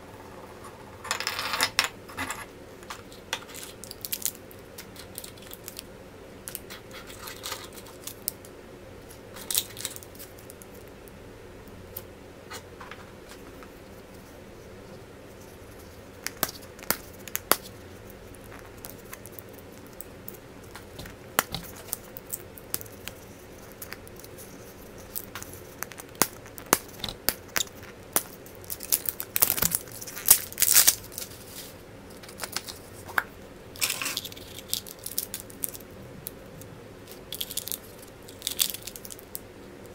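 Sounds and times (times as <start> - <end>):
wrapper crinkling and tearing: 28.6 - 33.0, 33.8 - 35.9, 37.1 - 39.4.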